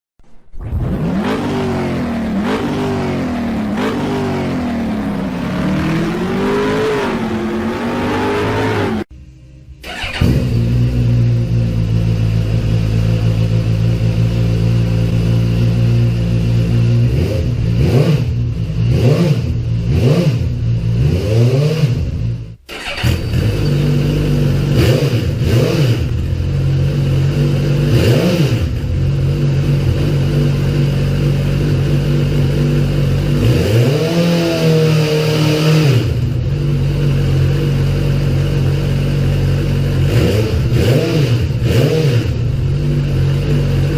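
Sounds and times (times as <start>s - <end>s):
engine throttle blips: 0.6s - 43.9s
motorcycle engine idling: 9.2s - 21.0s, 22.1s - 28.0s, 36.2s - 43.9s.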